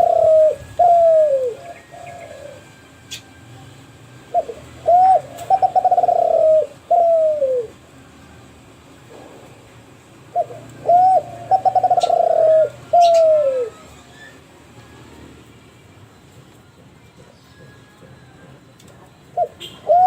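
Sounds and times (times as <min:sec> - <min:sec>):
dove cooing: 0:00.0 - 0:03.3, 0:04.3 - 0:07.8, 0:10.3 - 0:14.2, 0:19.3 - 0:20.0.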